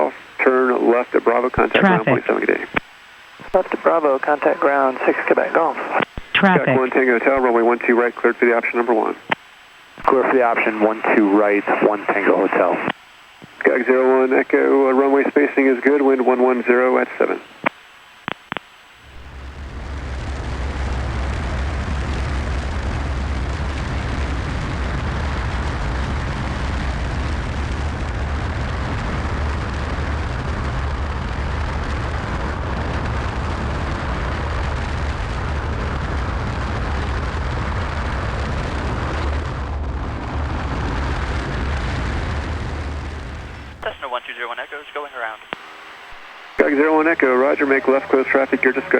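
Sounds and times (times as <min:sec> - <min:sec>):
aircraft cabin engine rumble: 0:46.6 - 0:48.9.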